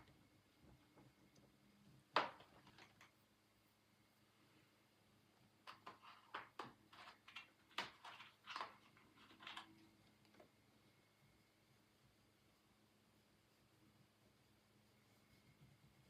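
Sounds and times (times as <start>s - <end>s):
faint rubbing strokes on paper: 11.9s - 16.0s.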